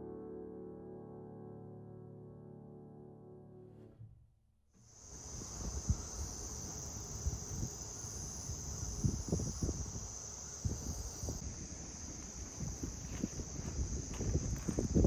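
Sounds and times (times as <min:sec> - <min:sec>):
crickets trilling: 0:04.8 - 0:15.0.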